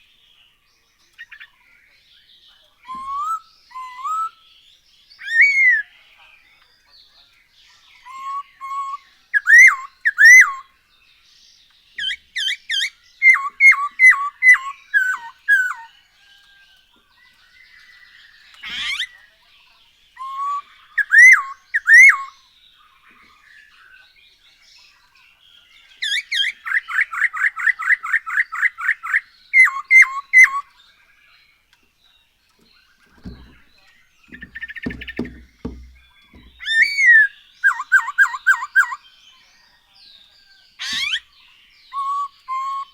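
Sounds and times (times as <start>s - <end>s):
bird singing whistled notes: 1.0s - 6.1s, 7.7s - 10.8s, 12.0s - 19.4s, 20.0s - 31.5s, 32.5s - 42.9s
low knocks: 33.1s - 36.8s.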